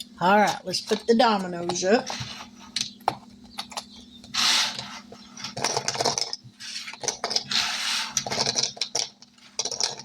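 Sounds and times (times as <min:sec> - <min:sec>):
dominoes clattering: 0:05.6 - 0:10.0.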